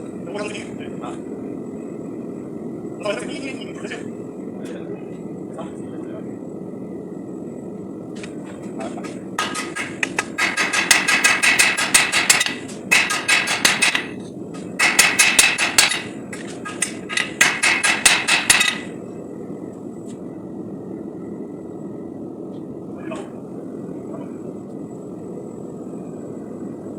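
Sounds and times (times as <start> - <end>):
hammer striking steel on anvil: 9.4 - 14.2, 14.8 - 18.9.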